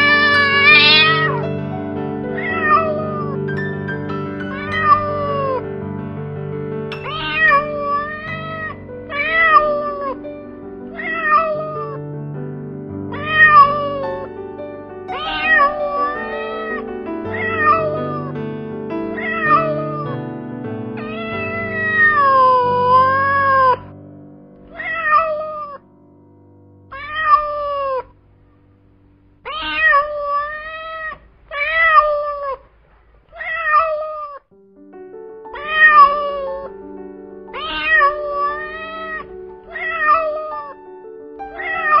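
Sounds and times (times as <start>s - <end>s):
cat meowing: 0.0s - 1.4s, 7.0s - 10.2s, 10.9s - 12.0s, 13.2s - 14.3s, 15.1s - 18.3s, 19.2s - 20.1s, 24.6s - 25.8s, 26.9s - 28.1s, 29.5s - 32.6s, 33.3s - 34.4s, 35.6s - 36.8s, 37.5s - 40.8s, 41.6s - 42.0s
background music with held notes: 0.0s - 24.3s, 34.6s - 42.0s.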